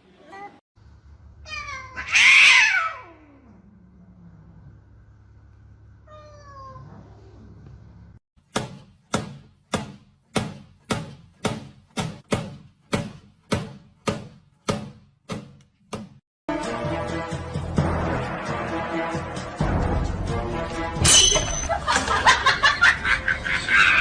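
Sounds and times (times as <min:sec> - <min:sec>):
cat meowing: 0:01.4 - 0:03.4, 0:06.1 - 0:07.3
sharp ringing struck sounds: 0:21.0 - 0:21.7.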